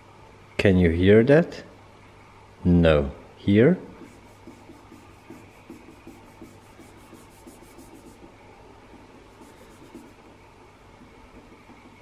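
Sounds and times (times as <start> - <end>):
hand rubbing car paint: 4.0 - 8.3, 9.0 - 10.4.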